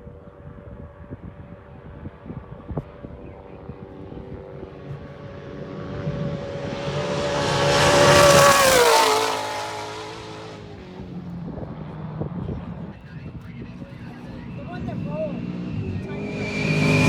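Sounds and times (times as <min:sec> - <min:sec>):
truck engine passing at speed: 0:04.1 - 0:11.2, 0:14.9 - 0:17.0.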